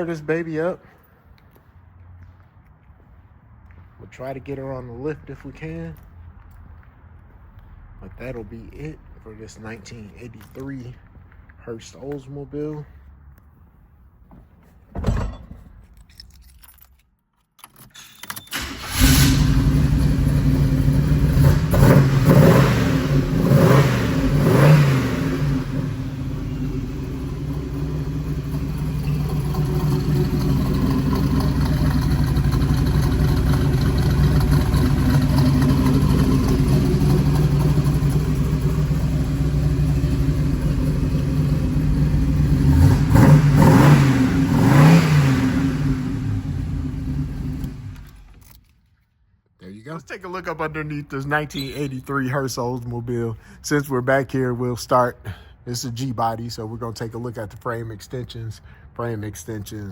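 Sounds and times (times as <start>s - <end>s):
car engine idling: 18.5s - 48.4s
car engine starting and revving: 18.5s - 48.6s.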